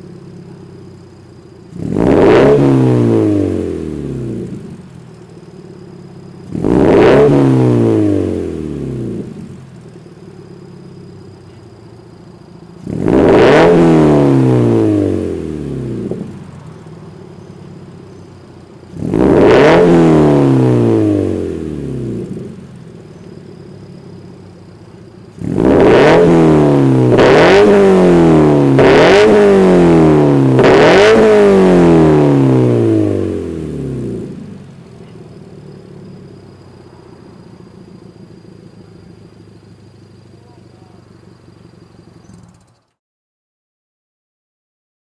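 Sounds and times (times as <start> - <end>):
car engine idling: 0.0 - 43.0
engine throttle blips: 0.0 - 43.0.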